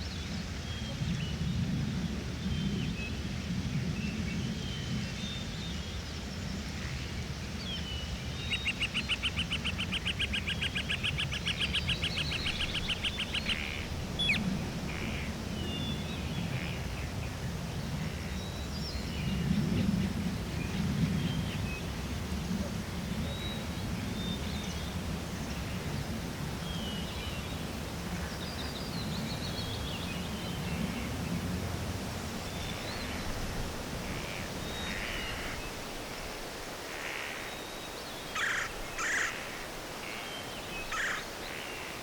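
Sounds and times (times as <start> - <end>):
low steady background noise: 0.0 - 42.0
bird trilling: 40.9 - 41.3.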